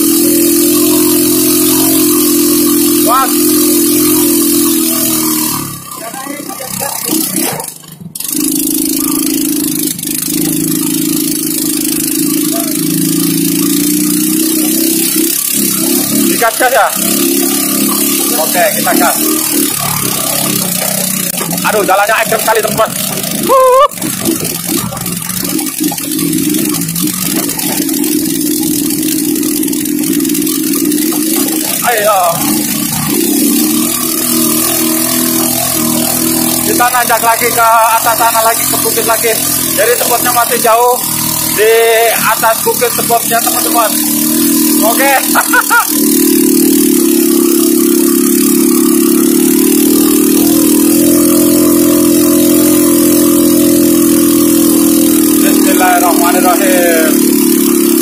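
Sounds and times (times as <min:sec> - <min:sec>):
motorcycle engine working hard: 0:00.0 - 0:58.0.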